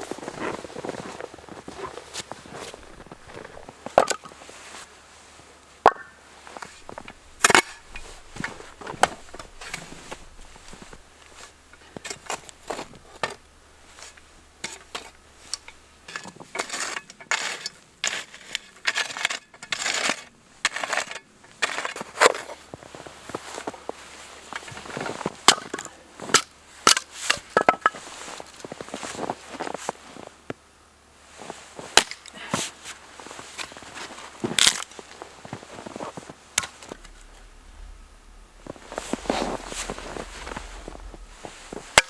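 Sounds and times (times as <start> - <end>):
short crunching noises: 0.2 - 4.4, 34.4 - 42.0.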